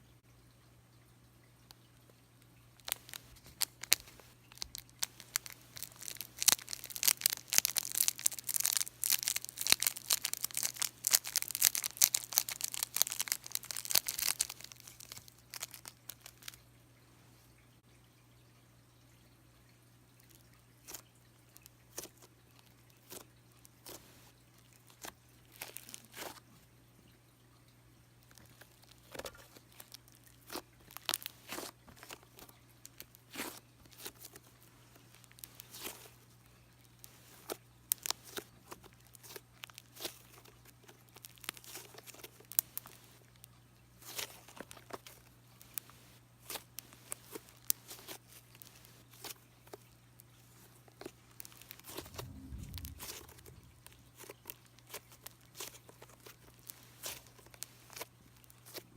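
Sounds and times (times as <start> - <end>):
faint low hum: 0.0 - 58.9
slime squished by hand: 2.8 - 16.6, 35.2 - 36.2, 44.0 - 49.8, 50.5 - 58.9.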